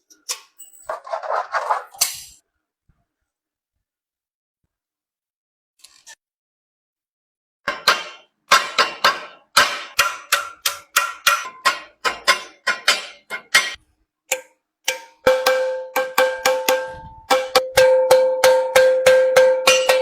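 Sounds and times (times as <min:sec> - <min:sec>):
hammer striking metal ladle: 0:07.7 - 0:20.0.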